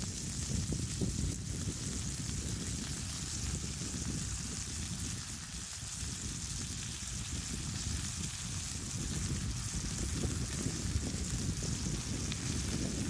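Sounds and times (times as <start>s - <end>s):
food sizzling in a pan: 0.0s - 13.0s
wind rumbling on microphone: 0.0s - 13.0s.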